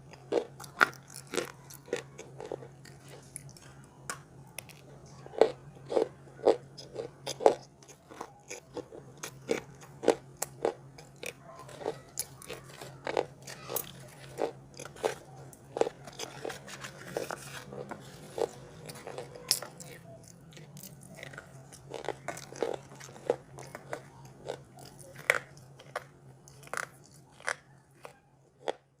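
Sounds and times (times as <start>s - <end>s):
soft chewing: 0.0s - 29.0s.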